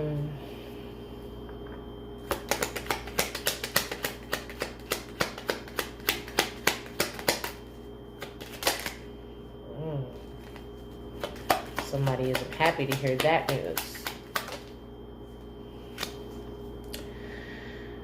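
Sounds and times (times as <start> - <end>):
cards being shuffled: 2.2 - 7.6, 8.2 - 9.0, 10.4 - 14.8, 15.9 - 16.2.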